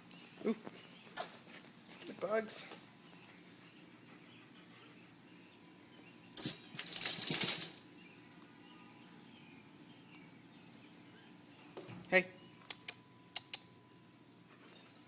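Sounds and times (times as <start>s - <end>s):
bird flapping wings: 6.4s - 7.8s.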